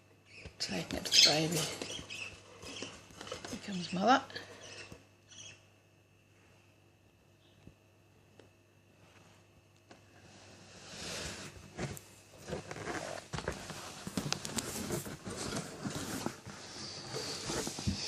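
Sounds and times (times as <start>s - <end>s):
budgies scratching and rustling: 0.3s - 5.6s, 12.5s - 18.0s.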